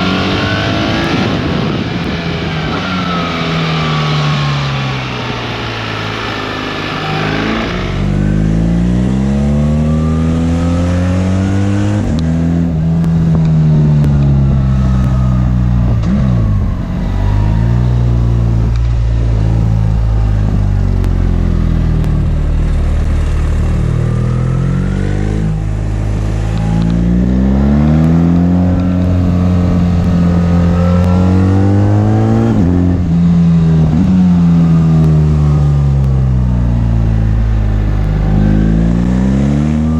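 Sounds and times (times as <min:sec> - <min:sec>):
rushing wind noise: 0:00.0 - 0:09.3
motorcycle engine accelerating: 0:00.0 - 0:39.9.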